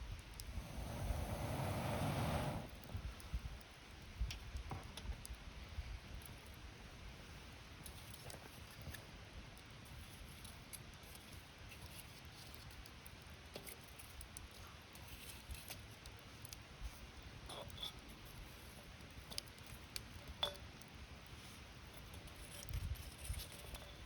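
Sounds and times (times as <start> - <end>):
campfire crackling: 0.0 - 24.0
soft steady hiss: 0.0 - 24.0.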